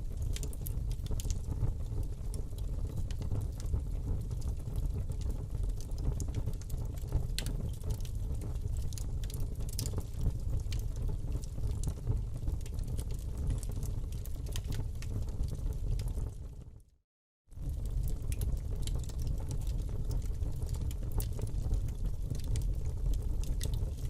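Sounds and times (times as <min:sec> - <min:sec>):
fire crackling and popping: 0:00.0 - 0:16.9, 0:17.6 - 0:24.0
fire rumbling: 0:00.0 - 0:16.9, 0:17.6 - 0:24.0.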